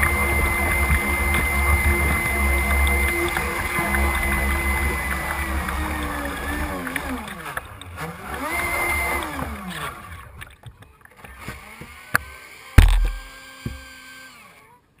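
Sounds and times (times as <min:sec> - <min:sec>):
electric motor and propeller whining: 0:00.0 - 0:10.6, 0:11.2 - 0:14.8
loud low thump: 0:12.8 - 0:13.3.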